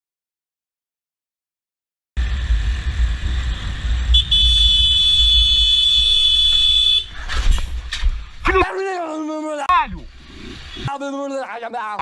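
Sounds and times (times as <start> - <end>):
vehicle driving rumble: 2.2 - 9.2.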